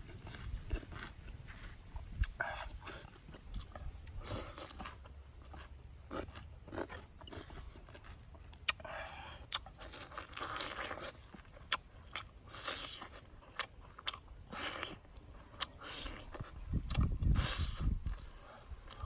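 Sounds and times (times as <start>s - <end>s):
crunchy chewing of fried chicken: 0.0s - 19.0s.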